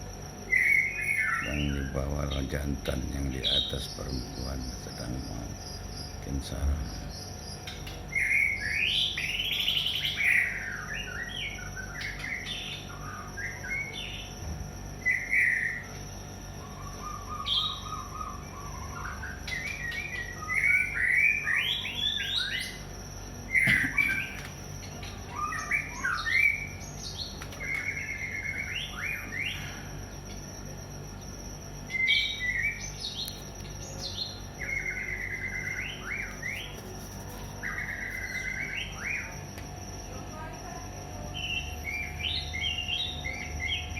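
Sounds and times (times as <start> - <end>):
faint steady high tone: 0.0 - 43.9
bird singing whistled phrases: 0.5 - 2.0, 8.1 - 14.3, 15.0 - 15.8, 16.6 - 22.8, 25.0 - 29.8, 31.9 - 33.3, 34.0 - 36.8.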